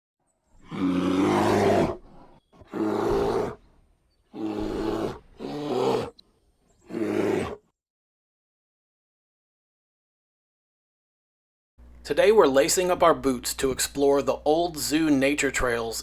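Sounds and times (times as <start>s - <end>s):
large animal roaring: 0.6s - 3.7s, 4.3s - 6.1s, 6.8s - 7.6s.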